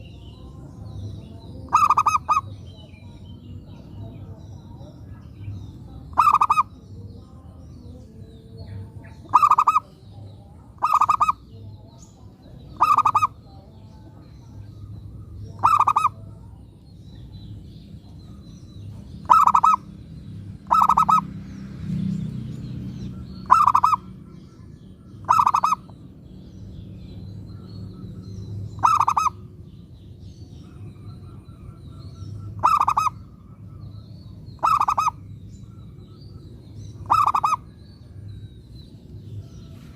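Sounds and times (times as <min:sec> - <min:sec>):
dove cooing: 0:01.7 - 0:02.5, 0:09.1 - 0:10.0, 0:10.7 - 0:11.5, 0:12.7 - 0:13.4, 0:15.5 - 0:16.3, 0:19.2 - 0:19.9, 0:20.6 - 0:21.3, 0:23.4 - 0:24.1, 0:25.2 - 0:25.9, 0:28.8 - 0:29.4, 0:30.7 - 0:33.8, 0:34.6 - 0:35.2, 0:37.0 - 0:37.8.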